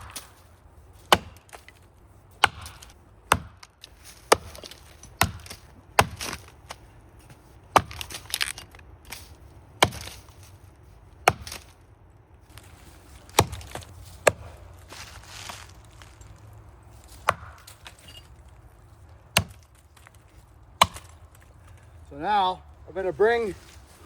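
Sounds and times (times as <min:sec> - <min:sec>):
axe chopping into tree trunk: 0:00.0 - 0:01.8, 0:02.4 - 0:06.5, 0:07.7 - 0:08.6, 0:09.8 - 0:10.4, 0:11.2 - 0:11.7, 0:13.2 - 0:14.7, 0:17.1 - 0:18.1, 0:19.3 - 0:19.8, 0:20.8 - 0:21.3.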